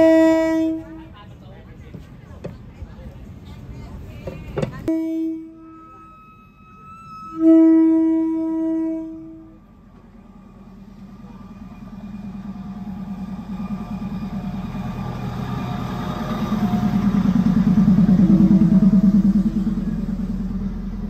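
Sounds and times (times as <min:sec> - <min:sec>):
train horn blast: 0:00.0 - 0:01.2, 0:04.9 - 0:09.7
diesel railcar rumble: 0:00.0 - 0:21.0.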